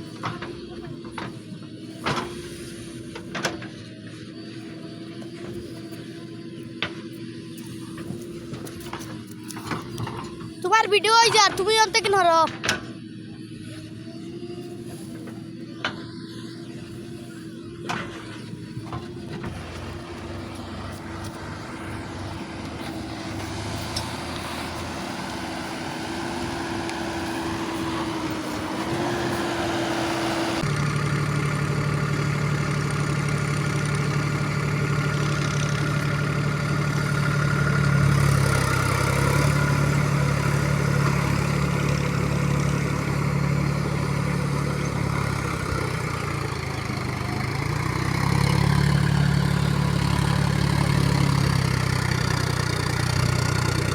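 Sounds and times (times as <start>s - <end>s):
heavy diesel engine running: 0.0s - 53.9s.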